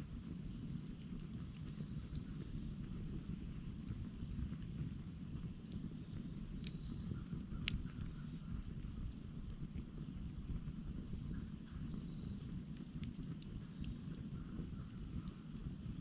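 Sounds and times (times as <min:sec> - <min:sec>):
campfire flames rushing: 0:00.0 - 0:16.0
fire crackles and pops: 0:00.0 - 0:16.0.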